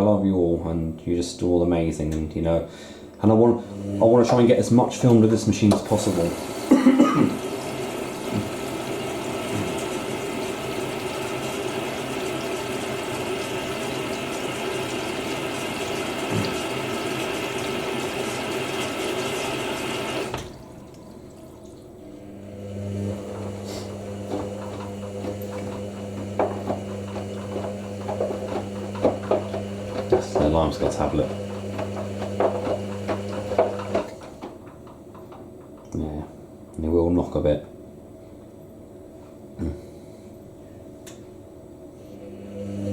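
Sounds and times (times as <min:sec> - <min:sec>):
washing machine filling with water: 0:03.2 - 0:36.2, 0:42.0 - 0:42.9
washing machine drum motor hum: 0:03.2 - 0:37.9, 0:42.2 - 0:42.9
tablet knocking in drum: 0:24.3 - 0:34.6.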